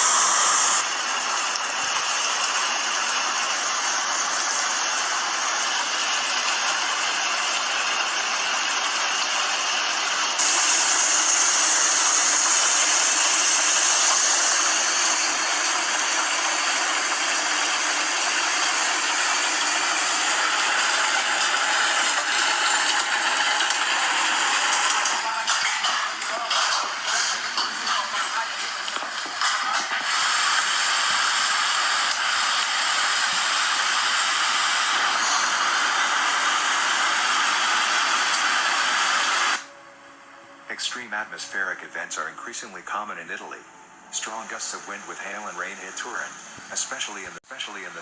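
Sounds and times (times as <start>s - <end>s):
heavy rain and hail: 0.8s - 18.0s.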